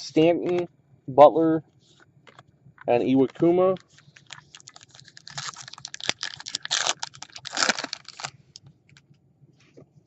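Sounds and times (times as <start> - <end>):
foil wrapper crinkling: 3.3 - 8.5.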